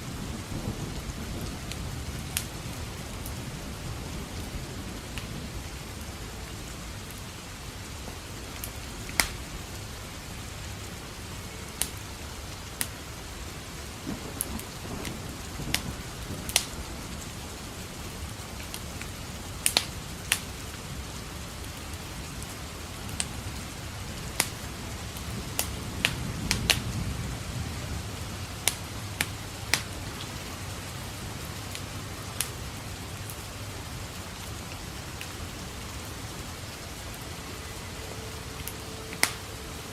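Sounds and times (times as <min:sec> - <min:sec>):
low thunder rumbling: 0:00.0 - 0:39.9
rain hiss: 0:00.0 - 0:39.9
wood fire crackling: 0:00.0 - 0:39.9.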